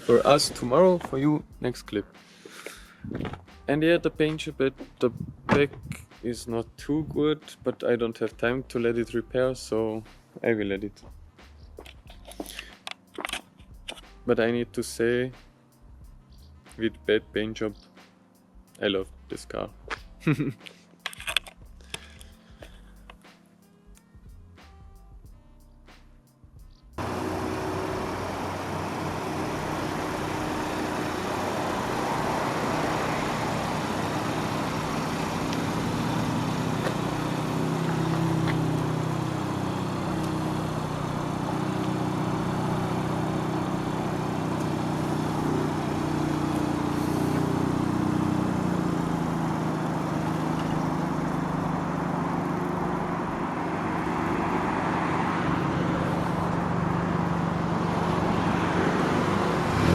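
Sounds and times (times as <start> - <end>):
car engine: 0.0 - 1.4, 27.0 - 59.9
tyre noise on road: 0.0 - 1.4, 27.0 - 59.9.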